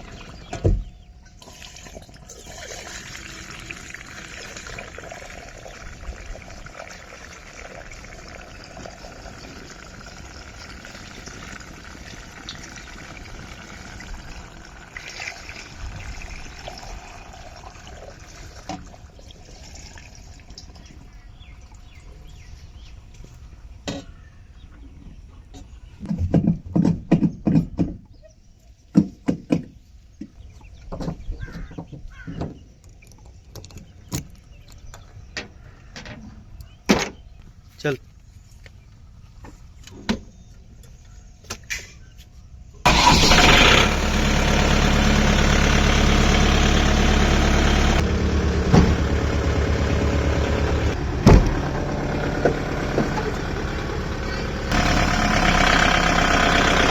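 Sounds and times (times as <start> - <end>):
fuel pouring into tank: 0.0 - 0.6, 1.4 - 22.3, 42.9 - 56.9.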